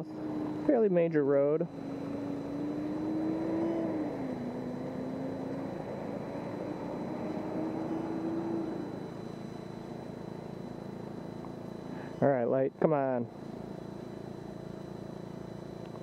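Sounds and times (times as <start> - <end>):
wind and road noise: 0.0 - 12.3
motorbike engine running: 0.0 - 16.0.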